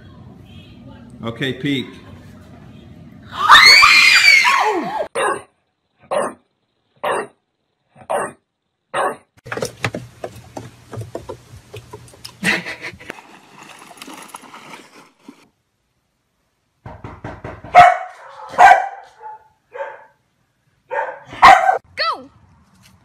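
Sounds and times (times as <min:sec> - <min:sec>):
children screaming: 0:03.3 - 0:05.1
dog barking: 0:05.2 - 0:06.4, 0:07.0 - 0:07.4, 0:08.0 - 0:09.3, 0:17.7 - 0:20.2, 0:20.9 - 0:21.9.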